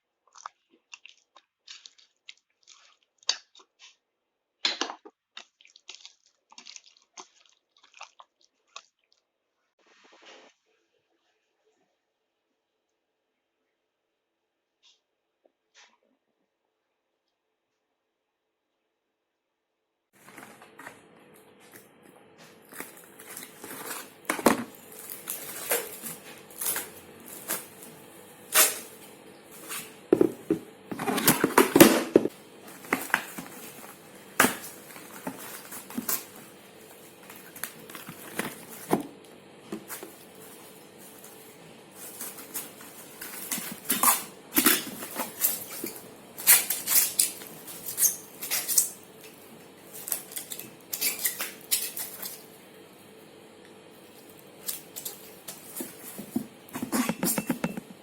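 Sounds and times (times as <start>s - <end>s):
faint steady hum: 20.2s - 58.0s.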